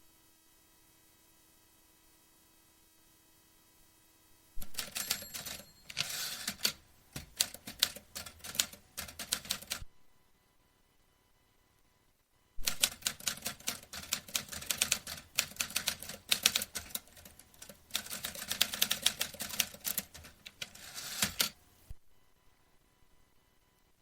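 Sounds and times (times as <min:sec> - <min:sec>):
typewriter key strikes: 0:12.6 - 0:21.5.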